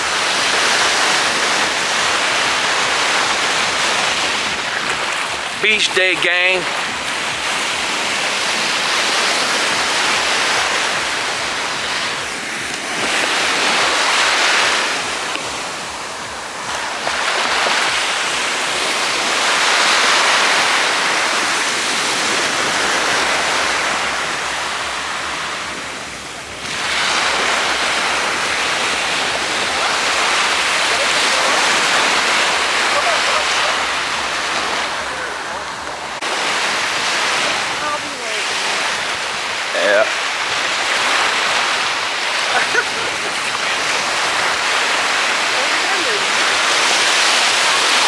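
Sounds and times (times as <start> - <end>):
ocean surf breaking: 0.0 - 48.0
wave crashing: 0.0 - 48.0.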